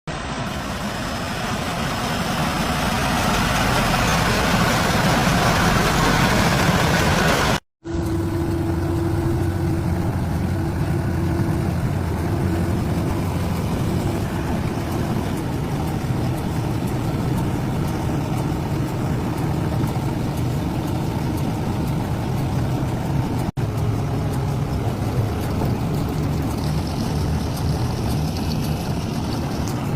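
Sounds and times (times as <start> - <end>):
tractor engine running: 0.1 - 29.9.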